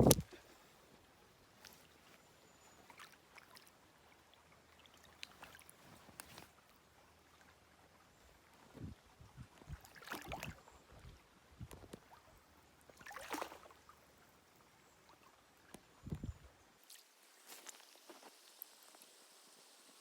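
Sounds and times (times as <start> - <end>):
creek water splashing: 2.8 - 8.0, 9.8 - 10.6, 12.0 - 14.3.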